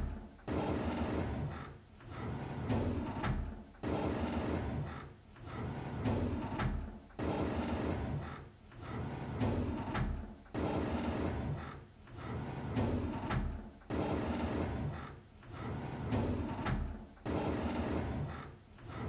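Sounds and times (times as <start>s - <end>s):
drawer sliding open: 7.6s - 19.0s.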